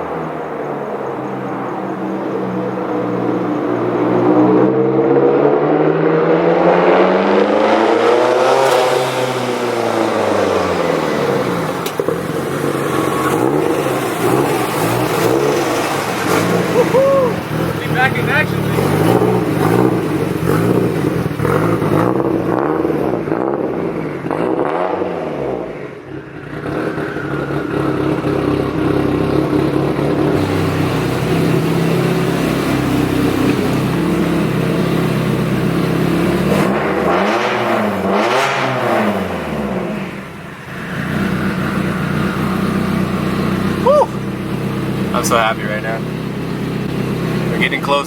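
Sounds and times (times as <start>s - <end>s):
car engine running: 8.1s - 23.3s, 26.6s - 37.2s, 39.4s - 48.0s.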